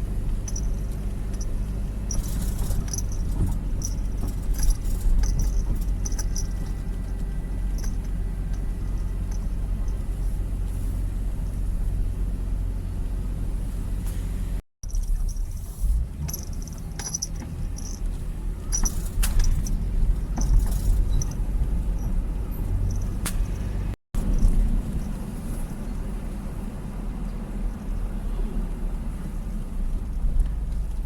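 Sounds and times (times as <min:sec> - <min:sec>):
road and engine rumble in car: 0:00.0 - 0:31.0
light rattles: 0:00.2 - 0:12.2, 0:14.0 - 0:26.8.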